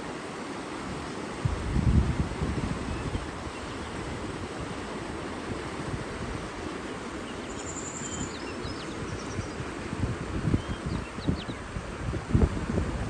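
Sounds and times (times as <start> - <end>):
faint bird chirps and trills: 2.9 - 4.1, 6.8 - 9.8, 10.4 - 11.7.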